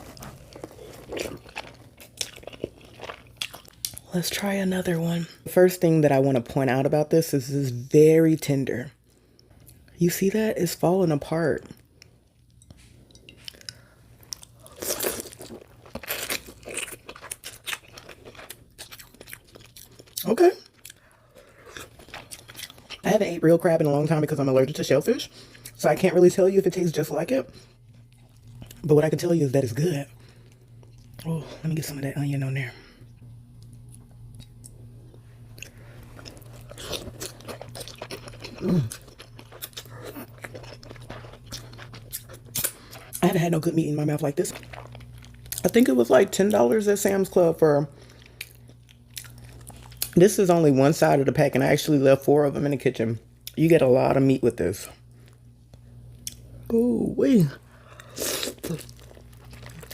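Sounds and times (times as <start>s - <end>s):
person chewing soft food: 0.0s - 4.1s, 11.6s - 23.1s, 27.5s - 28.9s, 30.1s - 31.4s, 33.0s - 43.4s, 44.0s - 45.9s, 48.0s - 50.2s, 54.8s - 56.8s, 57.4s - 59.9s.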